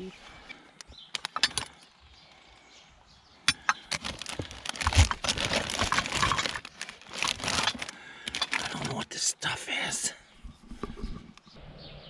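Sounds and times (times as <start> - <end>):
items rustling and crinkling: 3.5 - 9.0, 10.4 - 11.5.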